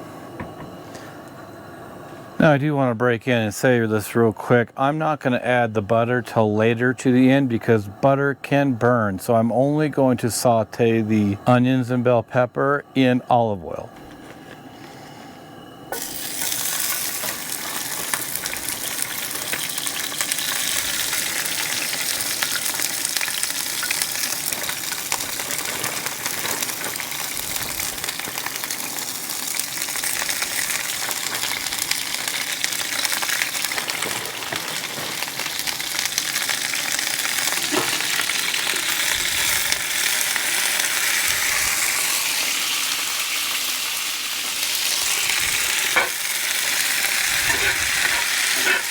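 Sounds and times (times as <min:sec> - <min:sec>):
onions and peppers sizzling in a skillet: 0:15.9 - 0:48.9.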